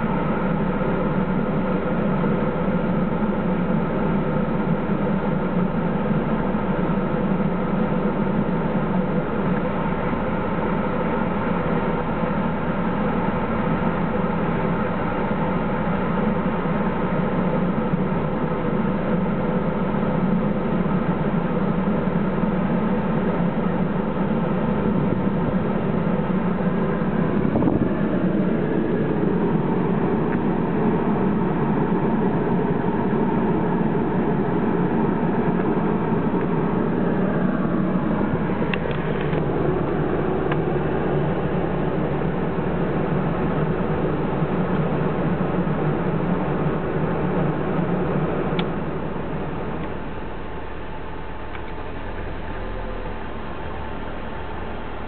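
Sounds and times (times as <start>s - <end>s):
air conditioning hiss: 0.0s - 55.0s
car air conditioning running: 0.0s - 55.0s.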